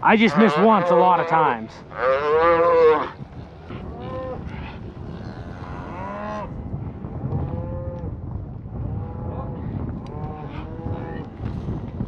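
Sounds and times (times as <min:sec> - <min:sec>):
cattle mooing: 0:00.0 - 0:06.5.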